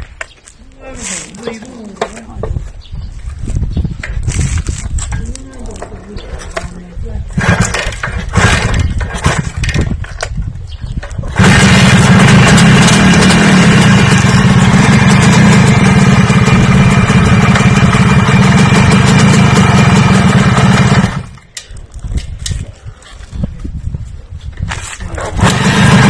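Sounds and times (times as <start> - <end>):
motor engine running: 7.4 - 9.8, 11.3 - 21.4, 25.2 - 26.0.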